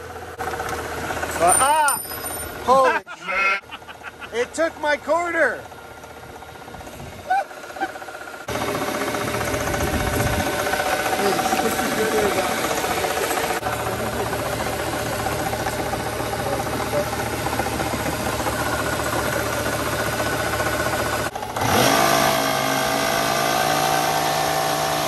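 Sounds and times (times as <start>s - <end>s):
car engine running: 0.0s - 2.9s, 3.6s - 25.0s.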